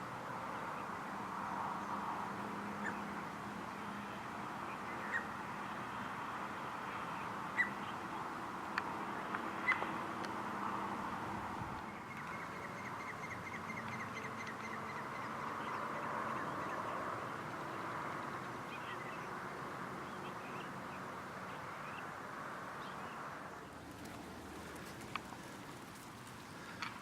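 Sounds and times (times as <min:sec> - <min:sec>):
birds chirping: 0:04.7 - 0:05.4, 0:06.5 - 0:10.0, 0:11.8 - 0:27.0.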